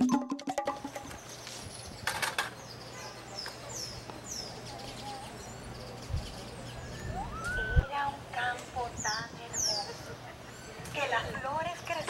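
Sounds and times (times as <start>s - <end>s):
bird chirping: 0.8s - 8.0s.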